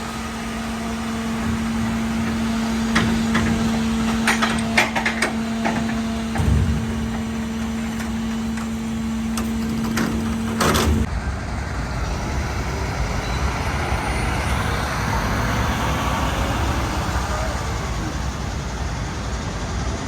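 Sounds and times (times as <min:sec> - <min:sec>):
engine and road noise: 0:00.0 - 0:20.0
garbage truck whine: 0:00.0 - 0:20.0.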